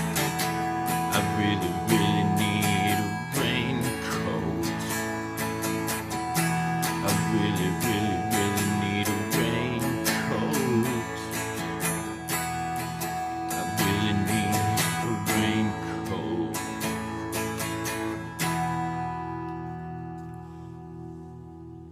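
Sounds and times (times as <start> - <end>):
acoustic guitar strummed: 0.0 - 21.9.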